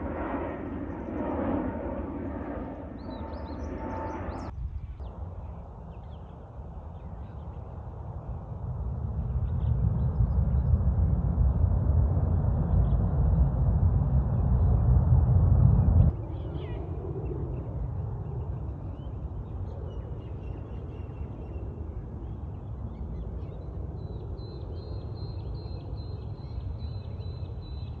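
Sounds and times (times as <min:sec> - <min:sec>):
steady low rumble: 0:00.0 - 0:05.9, 0:07.9 - 0:18.3.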